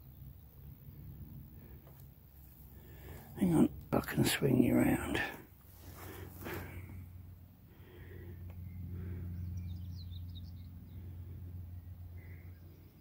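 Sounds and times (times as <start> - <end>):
steady low hum: 0.0 - 13.0
songbird chirping: 8.4 - 13.0.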